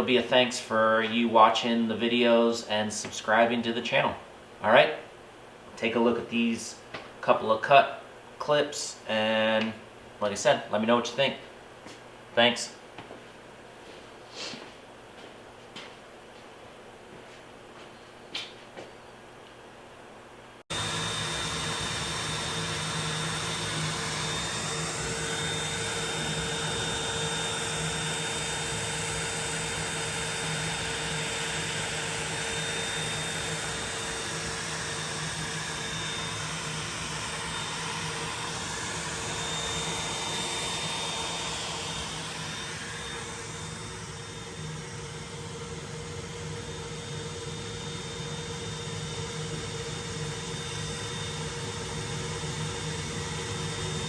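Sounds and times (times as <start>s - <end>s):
cnc router motor whine: 20.7s - 54.0s.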